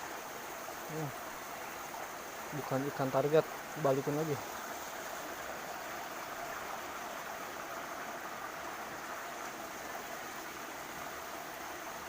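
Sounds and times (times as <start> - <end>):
waterfall and stream rushing: 0.0 - 12.0.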